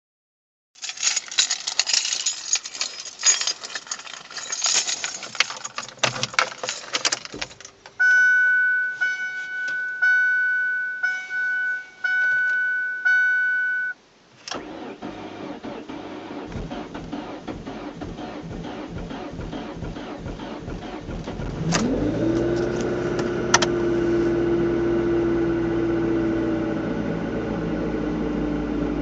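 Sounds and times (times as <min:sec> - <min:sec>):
car keys jangling: 0:00.8 - 0:07.9, 0:16.5 - 0:23.7
dashboard warning chime: 0:08.0 - 0:14.0
engine starter cranking: 0:14.4 - 0:23.8.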